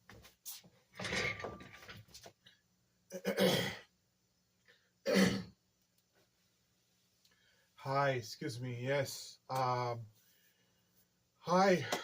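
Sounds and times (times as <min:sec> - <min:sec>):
man clearing throat and coughing: 0:03.1 - 0:03.9, 0:05.1 - 0:05.6.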